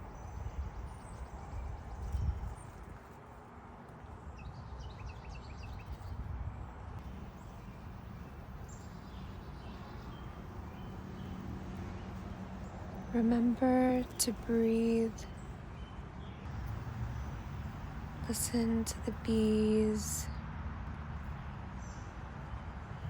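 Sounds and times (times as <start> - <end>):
wind rumbling in gusts: 0.0 - 3.4, 4.2 - 13.6.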